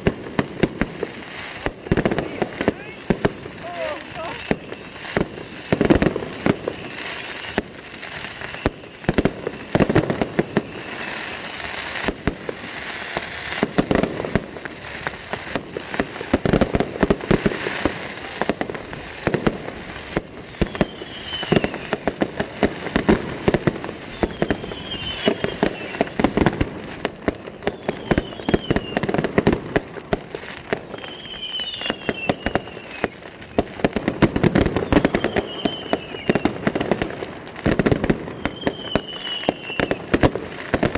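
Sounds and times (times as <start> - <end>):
fireworks bangs and crackling: 0.0 - 40.9
high falling whistles: 4.2 - 5.2, 24.1 - 26.0.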